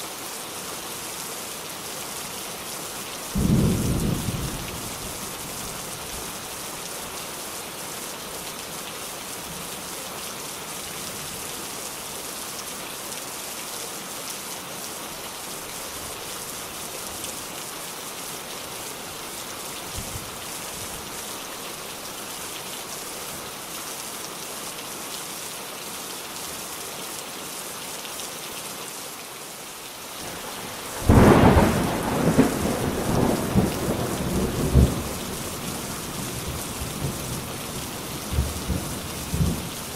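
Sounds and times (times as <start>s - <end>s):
steady rain falling: 0.0s - 39.9s
thunder clap rumbling: 31.0s - 35.4s.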